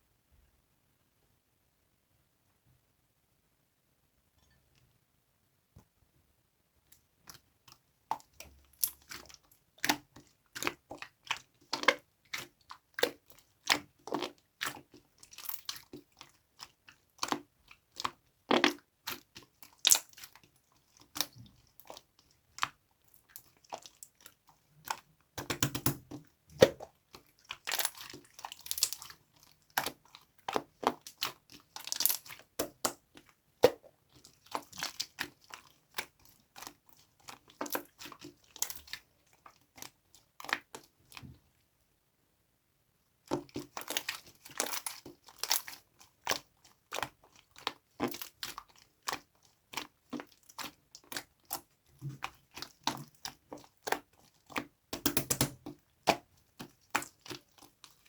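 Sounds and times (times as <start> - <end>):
slime clicking and popping: 25.4 - 26.8, 54.9 - 56.2.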